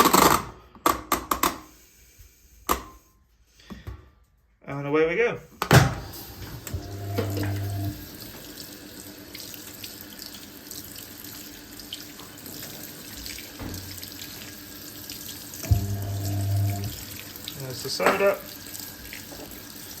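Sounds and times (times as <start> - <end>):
water running into washing machine: 5.8 - 20.0
low hum: 6.7 - 8.0, 15.6 - 17.2.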